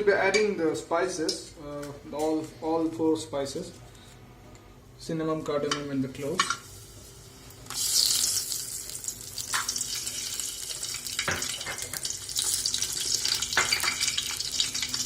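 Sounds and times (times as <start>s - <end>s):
spices sizzling in hot oil: 6.6s - 15.0s.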